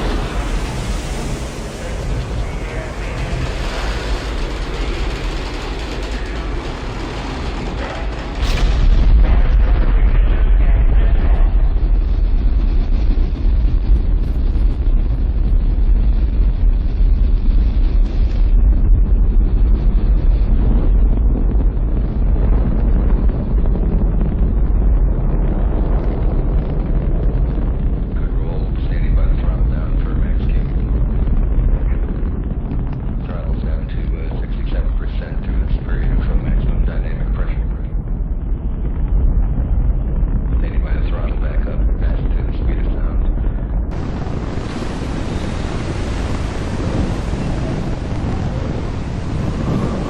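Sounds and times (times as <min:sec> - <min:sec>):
rocket engines thundering: 0:00.0 - 0:50.0.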